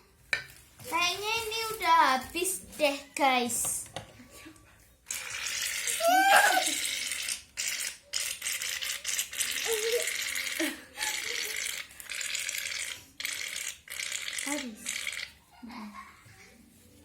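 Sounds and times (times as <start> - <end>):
aerosol can hissing and sputtering: 5.1 - 10.6, 11.3 - 15.3
child squealing: 5.9 - 6.9.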